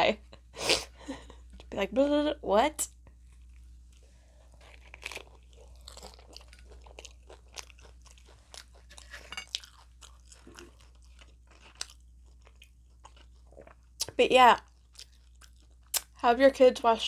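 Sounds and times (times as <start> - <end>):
crunching taco shell: 4.5 - 13.9.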